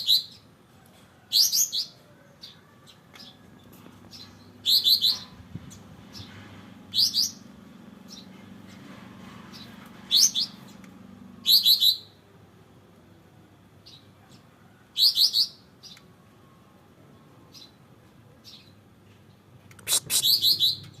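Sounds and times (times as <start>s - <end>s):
bird trilling: 4.6s - 5.4s, 11.4s - 12.1s, 19.9s - 21.0s.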